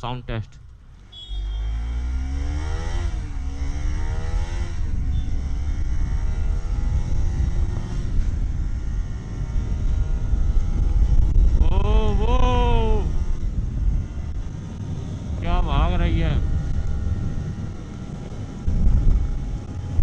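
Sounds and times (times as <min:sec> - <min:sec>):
motorcycle engine accelerating: 0:00.0 - 0:20.0
wind rumble on microphone: 0:00.0 - 0:20.0.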